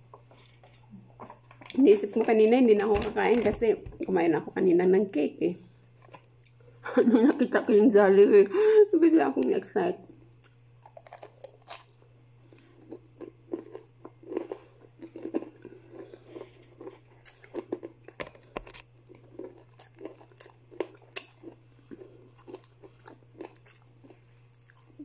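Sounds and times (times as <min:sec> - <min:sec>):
steady low hum: 0:00.0 - 0:25.0
chewing and crunching fried chicken: 0:10.4 - 0:25.0.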